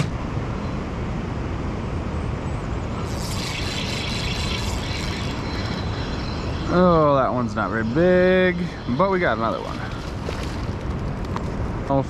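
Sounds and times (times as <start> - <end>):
high hiss: 3.0 - 10.8.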